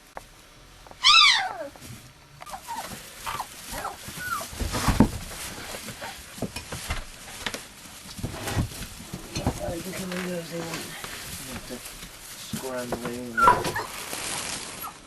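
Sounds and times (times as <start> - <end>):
puppies whimpering: 0.9 - 1.8, 2.4 - 4.6, 13.2 - 14.0
bumps and scuffles: 1.7 - 15.0.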